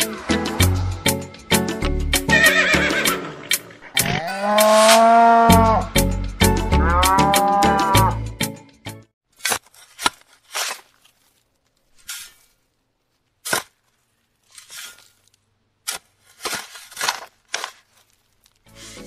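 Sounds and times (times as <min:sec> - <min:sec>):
toy shovel scraping sand: 0:04.0 - 0:05.2, 0:09.3 - 0:12.7, 0:13.4 - 0:19.0.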